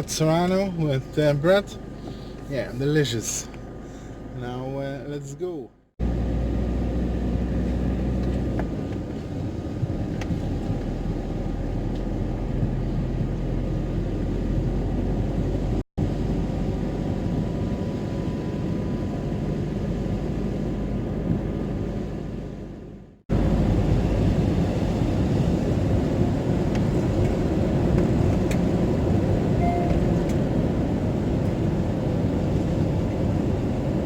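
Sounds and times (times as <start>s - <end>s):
van engine and road rumble: 0.0s - 34.0s.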